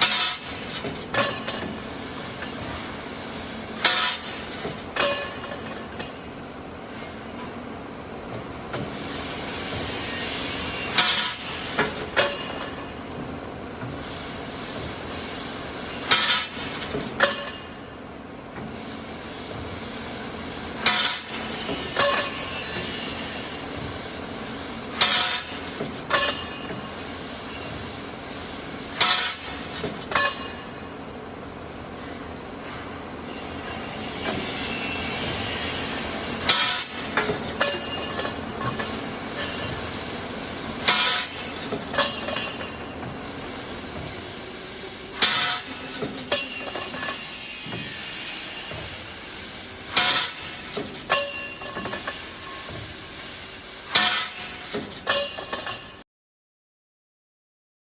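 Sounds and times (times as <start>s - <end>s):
sharp metallic clanks: 49.9s - 52.8s, 53.9s - 56.0s.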